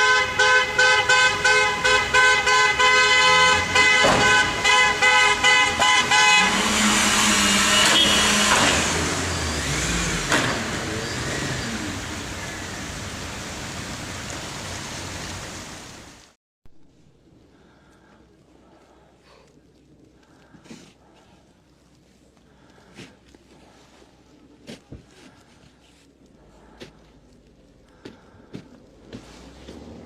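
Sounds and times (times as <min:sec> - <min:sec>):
car horns honking: 0:00.0 - 0:10.8
traffic noise: 0:00.0 - 0:30.0.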